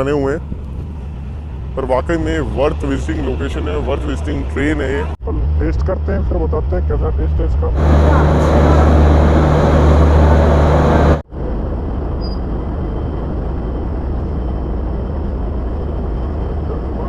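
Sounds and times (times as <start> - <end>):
locomotive engine droning: 6.4 - 17.0.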